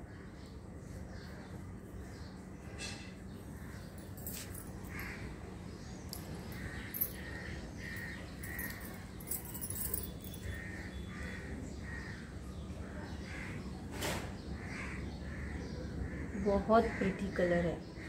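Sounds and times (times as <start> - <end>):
light clinks: 4.0 - 5.2, 6.1 - 10.6.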